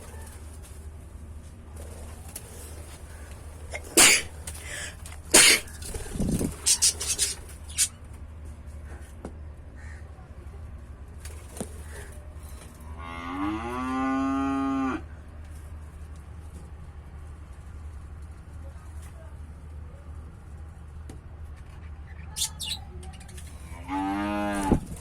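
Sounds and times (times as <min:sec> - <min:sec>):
cow mooing: 0:13.0 - 0:15.0, 0:23.9 - 0:24.7.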